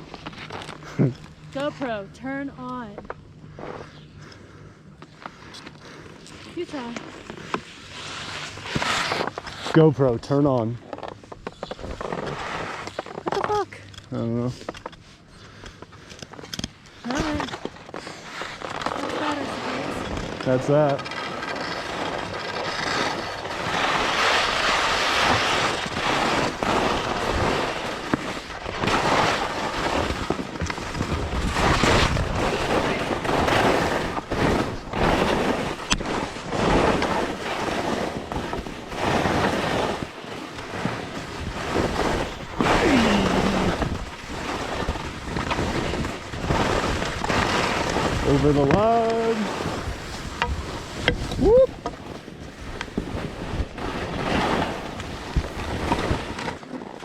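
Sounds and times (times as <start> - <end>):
skis scraping over snow: 0.0 - 4.2, 5.1 - 15.5, 17.0 - 57.0
wind rushing over microphone: 41.2 - 51.8.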